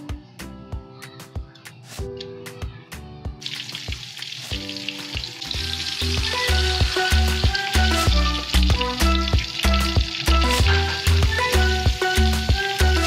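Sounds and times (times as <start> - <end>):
background music: 0.0 - 13.0
food sizzling in oil: 3.4 - 13.0.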